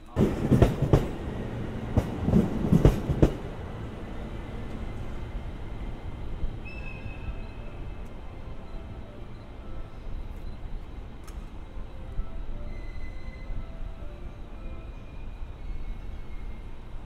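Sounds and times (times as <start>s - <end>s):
train rumble: 0.0s - 17.0s
train wheels clacking over joints: 0.2s - 3.7s.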